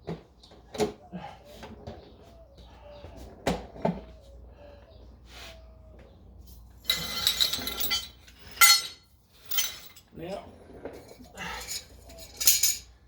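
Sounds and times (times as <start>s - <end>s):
metal objects clinking and rattling: 6.8s - 10.2s, 10.9s - 13.0s.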